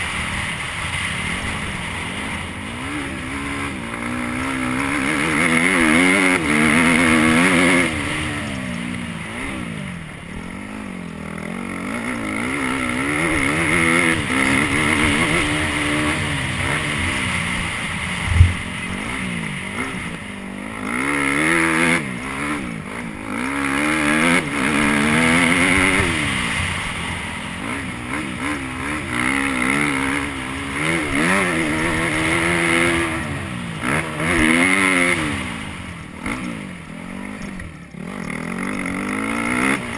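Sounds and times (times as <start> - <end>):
dirt bike engine revving: 0.0 - 39.9
sharp thump: 18.2 - 18.9.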